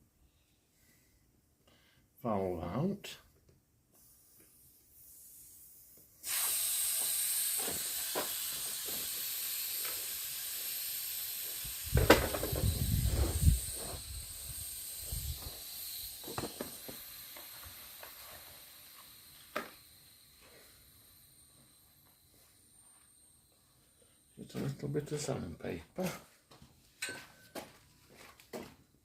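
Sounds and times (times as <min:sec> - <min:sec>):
air hissing out of tyre: 0:04.0 - 0:24.3.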